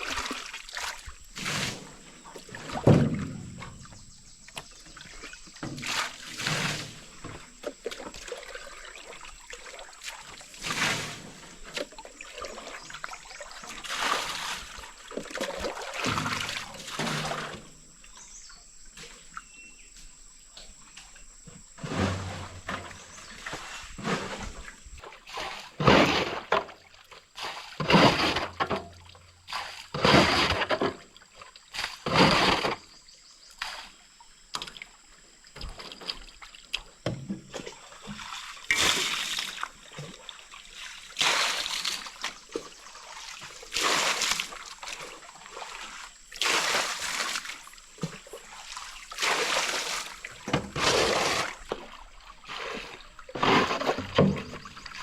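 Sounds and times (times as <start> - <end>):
water splashing and pouring: 0.0 - 17.9, 21.8 - 32.9, 35.6 - 55.0.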